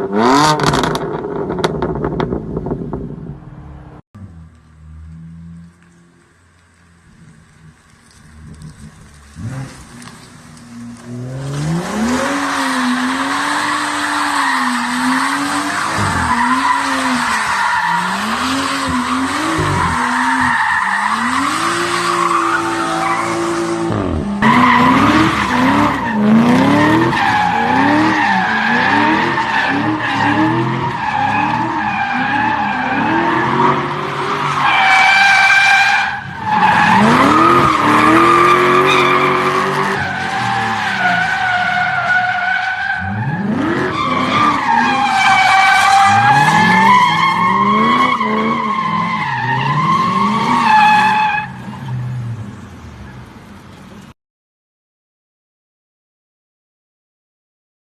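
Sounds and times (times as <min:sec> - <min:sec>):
car engine revving: 0:00.0 - 0:34.6
tyres squealing: 0:11.9 - 0:52.0.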